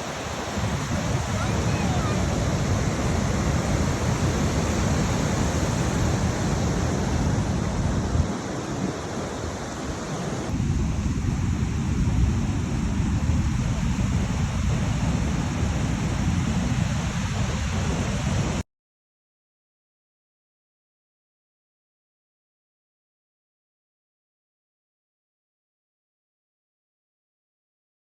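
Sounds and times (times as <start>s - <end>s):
steady rushing noise: 0.0s - 18.6s
wind buffeting microphone: 0.0s - 18.6s.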